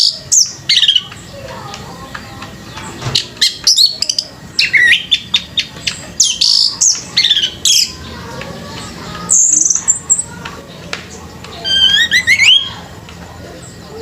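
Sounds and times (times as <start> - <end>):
bird singing whistled song: 0.0 - 1.1, 3.2 - 8.0, 11.6 - 12.9.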